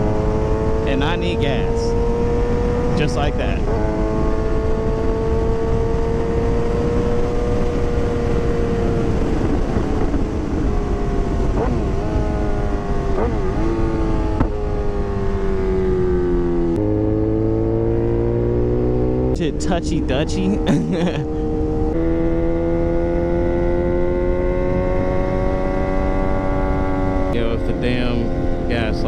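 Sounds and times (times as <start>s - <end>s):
wind noise: 0.0s - 16.9s, 24.2s - 29.0s
motorcycle engine cruising: 0.0s - 29.0s.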